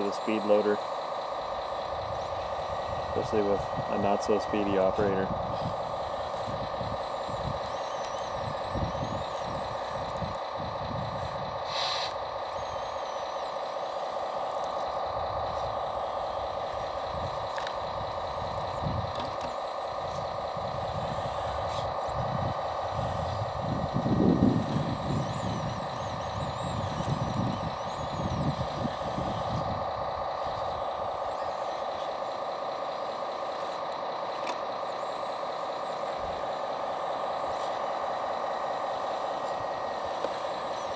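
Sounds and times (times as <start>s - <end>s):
electric motor whine: 0.0s - 40.9s
motor and gearing surges: 0.0s - 40.9s.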